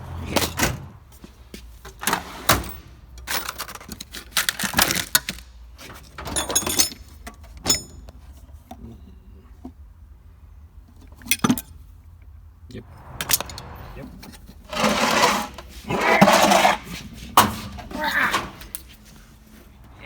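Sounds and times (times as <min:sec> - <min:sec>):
metal tools clattering: 0:06.2 - 0:08.0.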